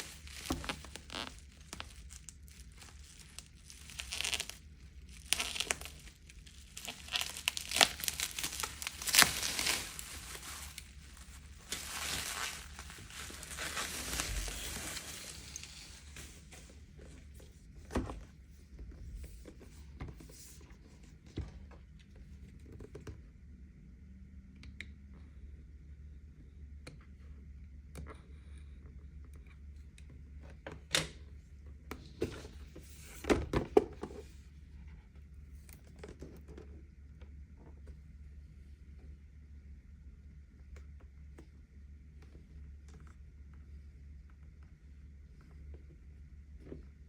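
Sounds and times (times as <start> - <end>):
packaging crinkling and tearing: 0.0 - 16.4.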